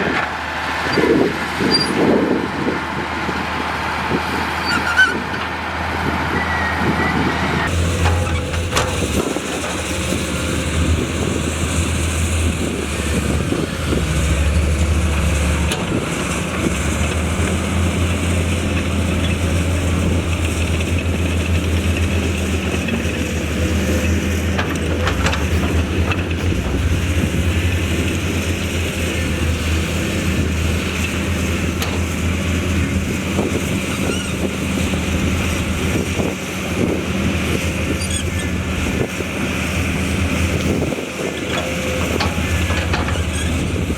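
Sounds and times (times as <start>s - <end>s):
heavy diesel engine drone: 0.0s - 43.9s.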